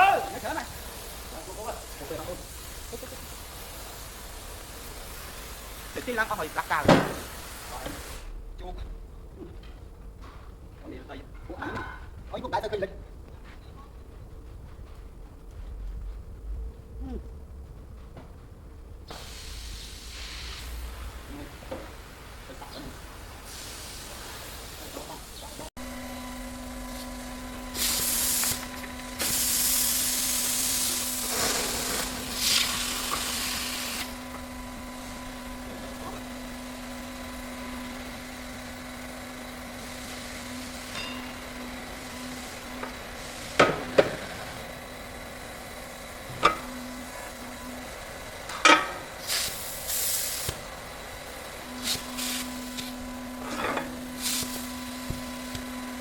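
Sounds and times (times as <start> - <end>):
loud hissing bursts: 0.0 - 8.3, 19.1 - 25.5, 49.2 - 50.8
machine hum: 0.0 - 23.5, 24.8 - 56.0.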